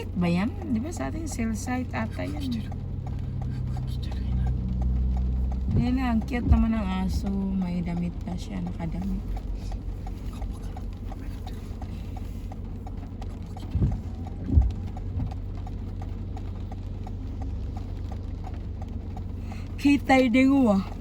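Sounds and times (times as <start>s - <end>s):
car cabin rumble: 0.0s - 21.0s
turn signal ticking: 0.0s - 21.0s.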